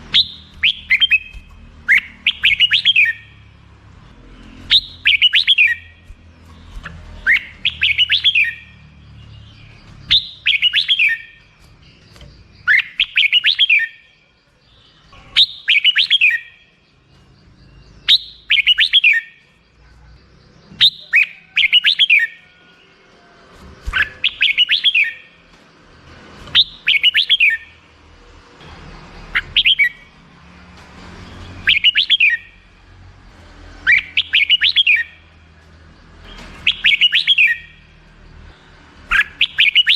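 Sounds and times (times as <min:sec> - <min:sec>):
bird singing warbled phrase: 0:00.0 - 0:03.6, 0:04.2 - 0:23.2, 0:23.8 - 0:25.4, 0:26.5 - 0:27.9, 0:29.1 - 0:30.2, 0:31.4 - 0:32.7, 0:33.8 - 0:35.4, 0:36.6 - 0:37.9, 0:39.1 - 0:39.9.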